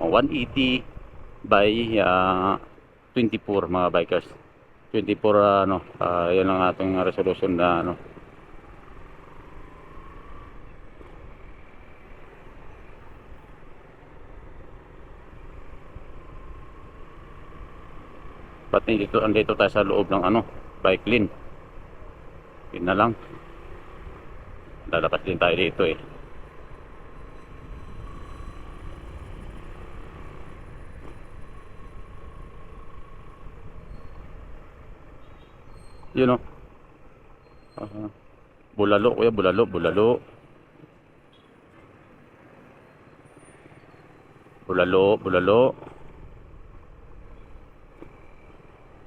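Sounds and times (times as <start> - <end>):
road noise: 0.0 - 49.0.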